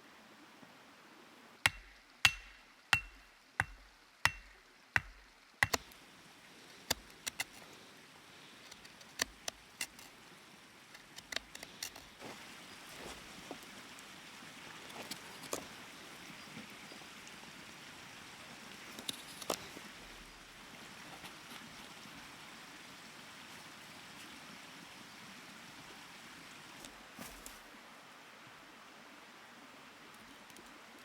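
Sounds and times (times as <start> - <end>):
sharp blows with dull thuds: 1.7 - 5.9.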